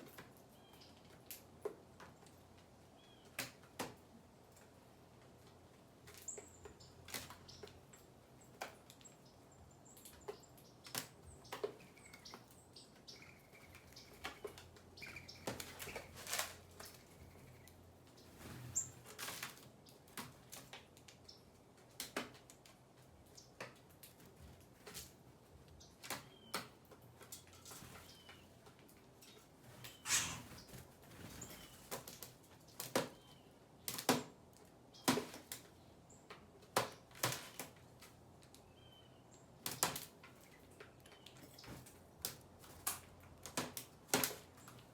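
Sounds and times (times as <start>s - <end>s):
birds pecking taps: 10.0s - 17.8s
faint bird chirps: 11.3s - 19.0s, 29.8s - 31.9s.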